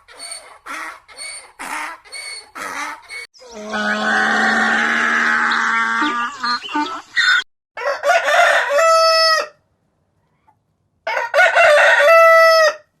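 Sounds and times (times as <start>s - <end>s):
rooster crowing: 7.8s - 9.6s, 11.1s - 12.9s.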